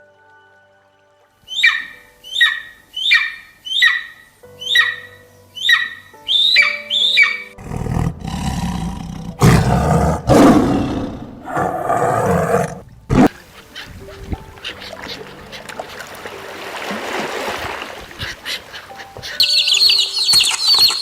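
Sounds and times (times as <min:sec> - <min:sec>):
bird squawking: 0:01.5 - 0:07.6, 0:13.2 - 0:16.1, 0:18.0 - 0:21.0
large animal roaring: 0:07.6 - 0:13.3.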